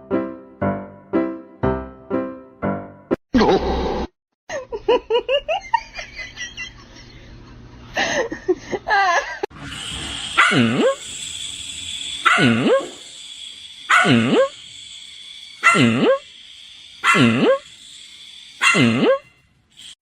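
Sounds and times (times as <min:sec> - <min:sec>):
dog barking: 0:10.4 - 0:11.0, 0:12.2 - 0:13.0, 0:13.9 - 0:14.5, 0:15.6 - 0:16.2, 0:17.0 - 0:17.6, 0:18.6 - 0:19.2.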